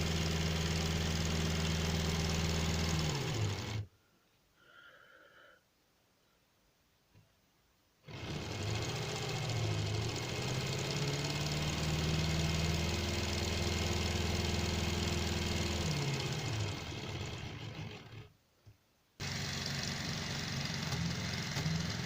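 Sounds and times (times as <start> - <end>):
small electric motor spinning: 0.0 - 3.9, 8.1 - 18.3, 19.2 - 22.0.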